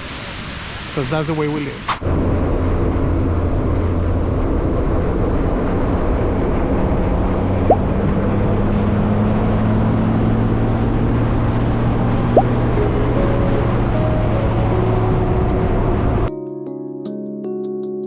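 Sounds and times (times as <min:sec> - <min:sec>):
vehicle engine humming: 0:00.0 - 0:16.3.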